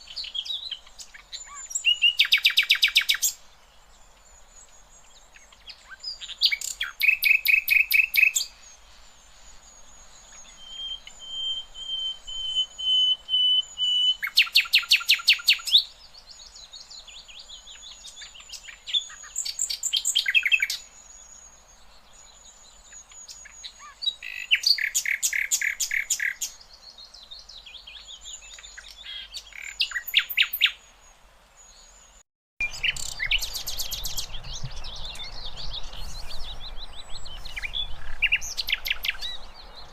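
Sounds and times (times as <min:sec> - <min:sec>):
bird singing fast repeated notes: 0:06.0 - 0:08.6, 0:10.4 - 0:15.8, 0:22.9 - 0:26.6, 0:32.6 - 0:39.9
bird long steady whistle: 0:06.0 - 0:15.9.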